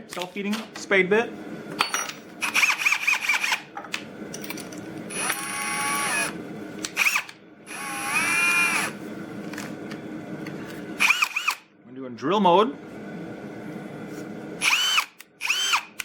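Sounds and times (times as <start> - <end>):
cordless drill whine: 2.4 - 3.6, 5.1 - 6.4, 7.0 - 9.0, 11.0 - 11.6, 14.6 - 16.0.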